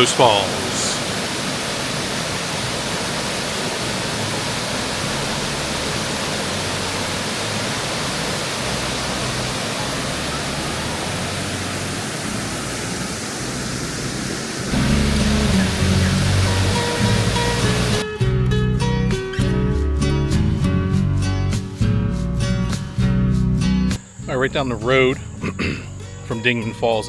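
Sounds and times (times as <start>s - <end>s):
waterfall roaring: 0.0s - 18.0s, 24.3s - 26.6s.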